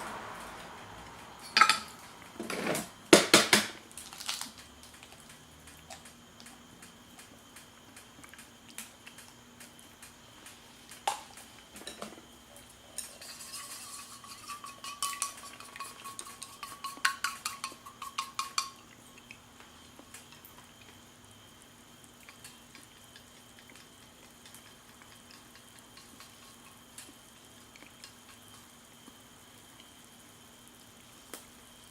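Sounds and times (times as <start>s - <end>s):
utensil clinking against cookware: 1.4s - 2.0s, 13.0s - 18.8s.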